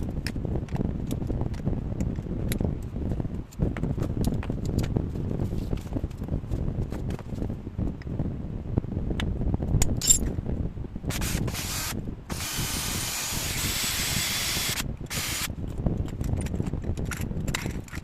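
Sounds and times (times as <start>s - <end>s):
wind rumble on microphone: 0.0s - 18.0s
hissing bursts: 11.1s - 15.5s.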